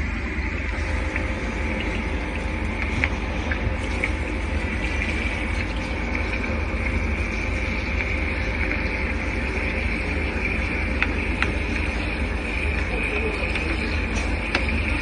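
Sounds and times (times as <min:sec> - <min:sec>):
refrigeration motor humming: 0:00.0 - 0:15.0.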